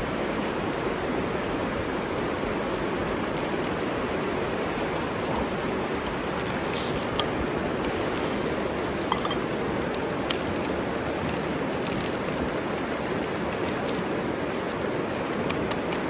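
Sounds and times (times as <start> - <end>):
river flowing: 0.1 - 16.0
light clicks and clinks: 9.1 - 10.0.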